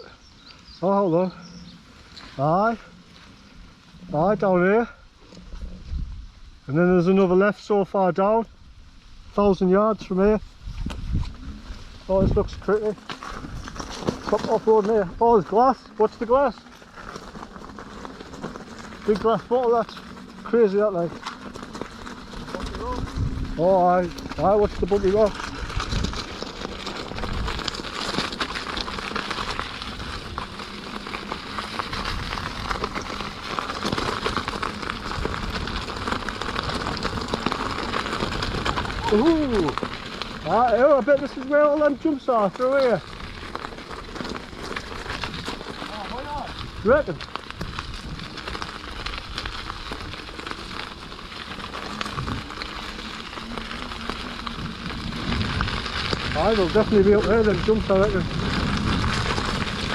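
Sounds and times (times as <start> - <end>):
electric unicycle riding on rocks: 0.0 - 59.9
tyre clicking on stones: 12.6 - 59.9
steady low rumble: 17.3 - 40.6
rain: 25.3 - 42.0, 42.6 - 59.9.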